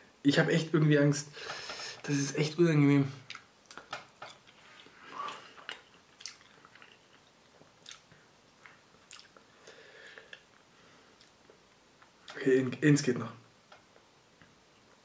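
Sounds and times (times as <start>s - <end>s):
quiet chewing: 3.3s - 9.5s, 10.2s - 12.4s.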